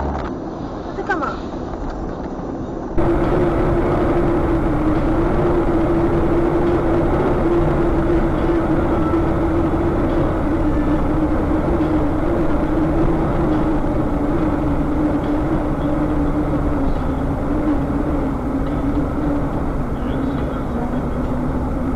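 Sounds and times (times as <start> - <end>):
vehicle engine and road noise: 0.0 - 21.9
droning tone: 3.0 - 21.9.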